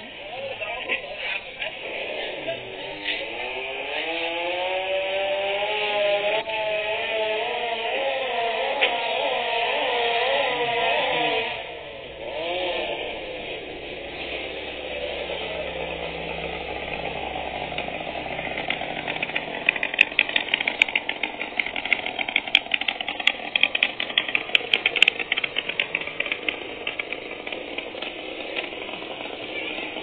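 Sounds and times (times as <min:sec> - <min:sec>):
two-stroke engine running: 0:00.0 - 0:30.0
metallic rattling clatter: 0:14.0 - 0:30.0.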